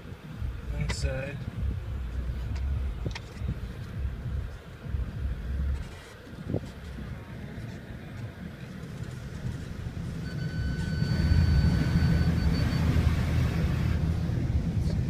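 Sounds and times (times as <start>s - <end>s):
vehicle rumble: 0.0s - 15.0s
electronic beep: 10.2s - 13.6s.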